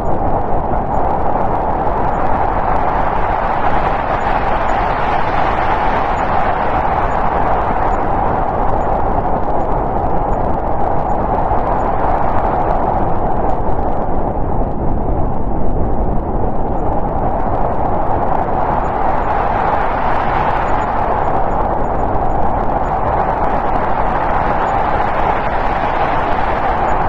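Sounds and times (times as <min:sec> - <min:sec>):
snowstorm wind howling: 0:00.0 - 0:27.0.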